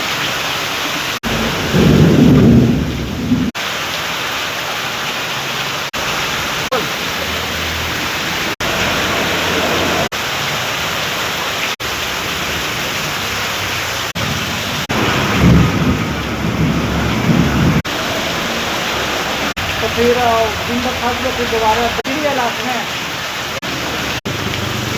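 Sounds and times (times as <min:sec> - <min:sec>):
heavy rain falling: 0:00.0 - 0:24.9
deep rumble: 0:01.2 - 0:03.5.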